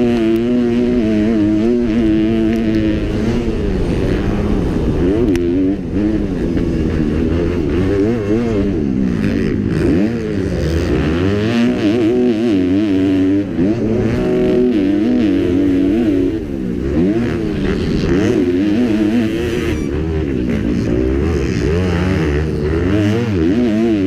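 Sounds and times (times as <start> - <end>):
motocross bike engine revving: 0.0 - 24.0.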